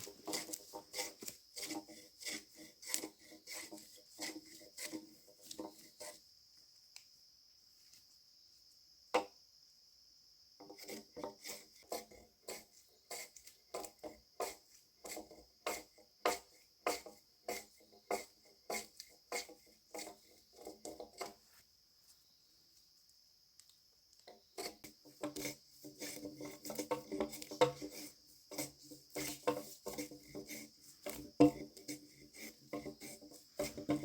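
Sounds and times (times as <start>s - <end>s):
hand tool rasping on wood: 0.0s - 6.2s, 10.6s - 21.4s, 24.6s - 34.0s
crickets chirring: 0.0s - 34.0s.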